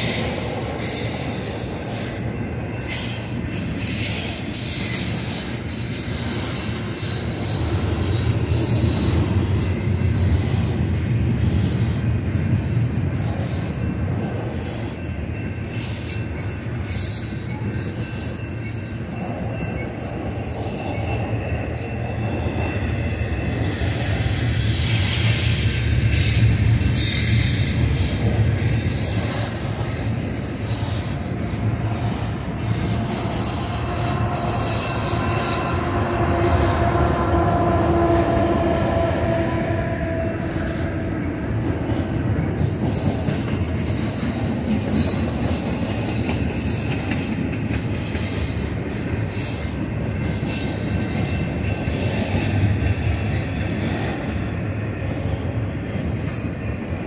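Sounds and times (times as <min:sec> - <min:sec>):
train wheels rumbling and rattling: 0:00.0 - 0:57.0
wheel squeal: 0:12.7 - 0:39.2.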